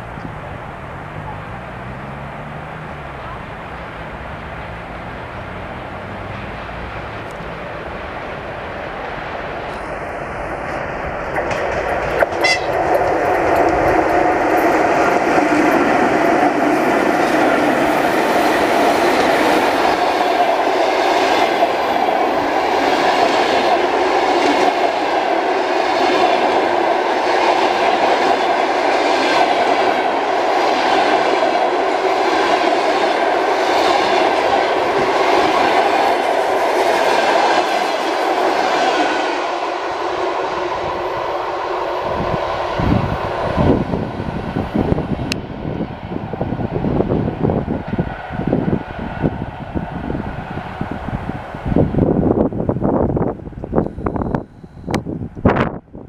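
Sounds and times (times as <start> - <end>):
train wheels clattering over rails: 9.7 - 39.3.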